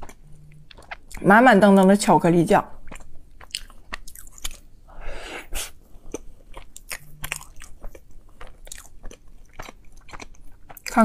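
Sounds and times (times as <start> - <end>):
chewing soft bread: 0.0 - 1.9, 2.8 - 4.7, 5.8 - 11.0.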